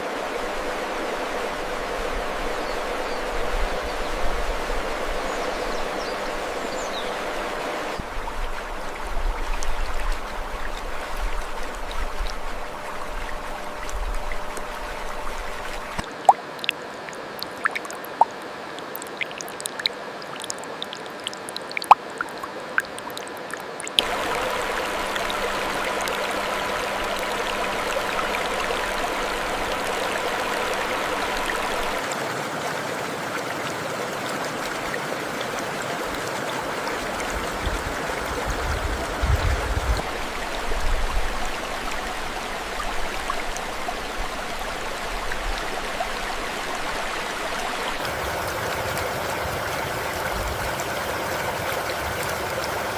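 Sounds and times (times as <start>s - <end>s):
stream water rushing: 0.0s - 52.9s
water clicks and splashes: 6.0s - 32.3s, 33.3s - 49.8s
low wind rumbles: 37.3s - 43.0s.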